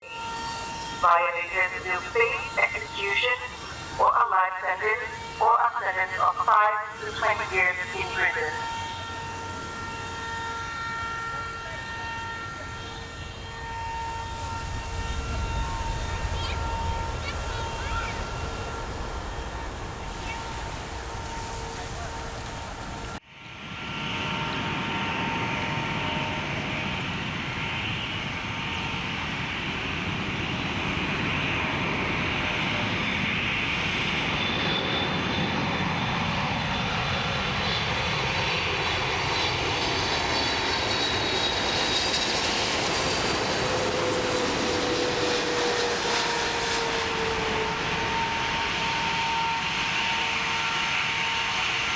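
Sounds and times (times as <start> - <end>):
jet airliner passing overhead: 0.0 - 51.9.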